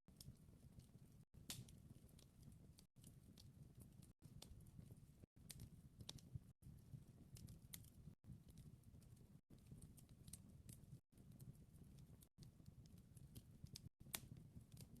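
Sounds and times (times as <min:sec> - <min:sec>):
wood fire crackling: 0:00.1 - 0:15.0.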